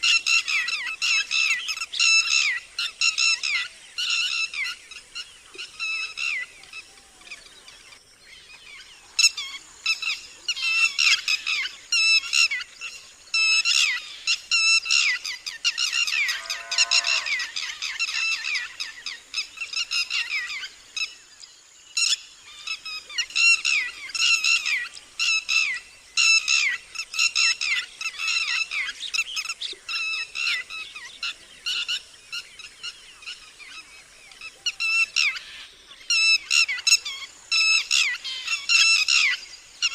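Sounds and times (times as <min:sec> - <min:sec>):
lapwing alarm calls: 0:13.4 - 0:20.7, 0:34.4 - 0:39.9
lower falling bird call: 0:16.0 - 0:17.6.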